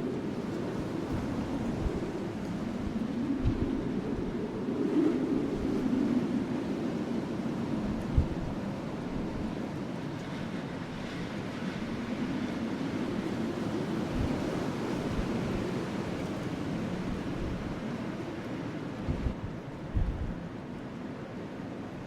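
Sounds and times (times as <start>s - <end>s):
wind rushing: 0.0s - 6.4s.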